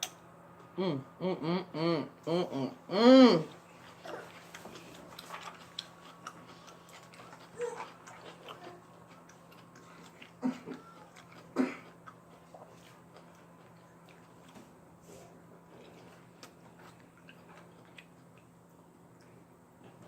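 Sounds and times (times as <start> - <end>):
chewing and mouth clicks: 3.5 - 14.6, 15.7 - 20.0.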